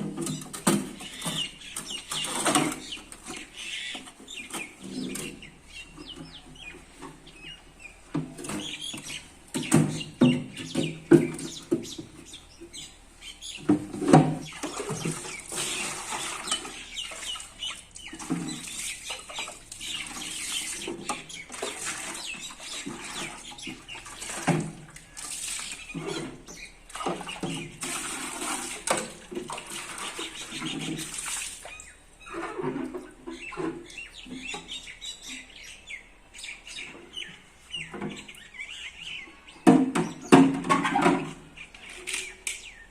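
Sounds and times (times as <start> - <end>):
birds chirping: 0.0 - 42.9
water splashing and running: 14.1 - 31.9.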